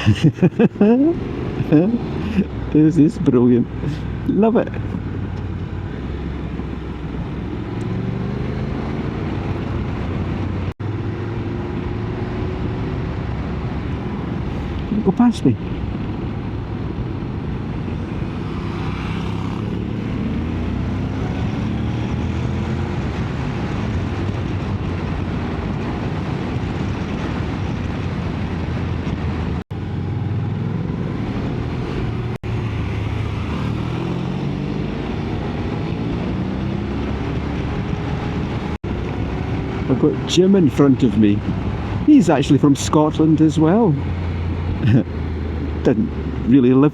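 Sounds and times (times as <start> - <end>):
motorcycle engine revving: 4.9 - 13.9, 17.4 - 42.1.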